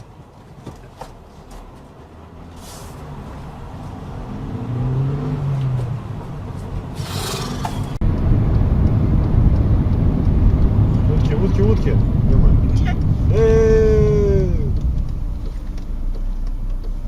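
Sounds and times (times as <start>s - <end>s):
car engine: 0.0s - 17.0s
road noise: 0.0s - 17.0s
low rumble: 7.9s - 16.8s.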